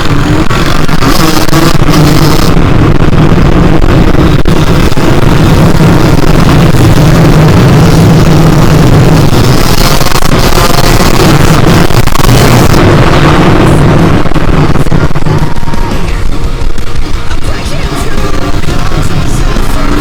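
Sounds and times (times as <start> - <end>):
two-stroke motocross engine: 0.0 - 20.0.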